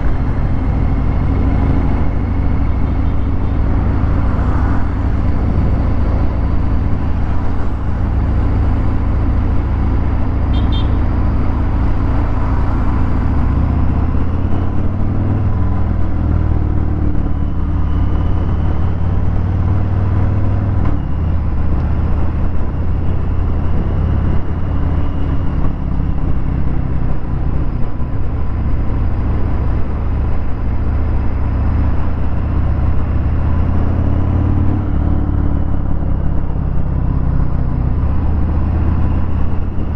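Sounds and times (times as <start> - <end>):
motorcycle exhaust note while riding: 0.0 - 39.9.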